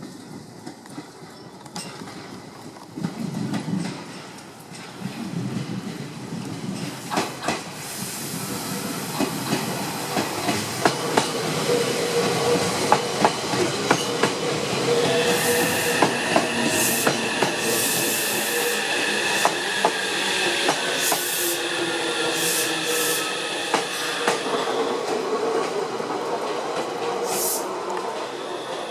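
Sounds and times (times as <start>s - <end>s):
train wheels clicking over rail joints: 0.0s - 21.6s.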